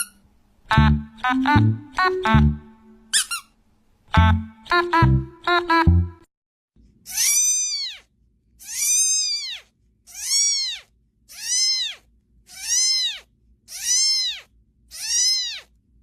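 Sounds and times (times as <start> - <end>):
cat meowing: 7.1 - 15.8.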